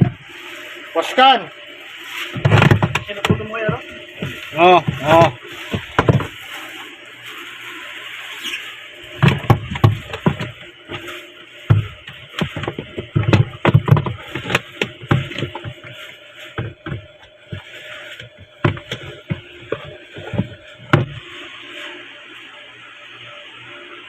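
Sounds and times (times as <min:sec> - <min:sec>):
hard objects knocking and clattering: 0:02.3 - 0:06.4, 0:09.1 - 0:11.1, 0:11.7 - 0:21.2.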